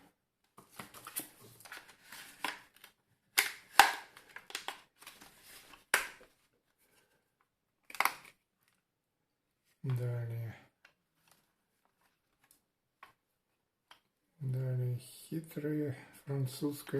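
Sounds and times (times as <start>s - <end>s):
plastic cracking: 0.5s - 6.4s, 7.8s - 8.8s.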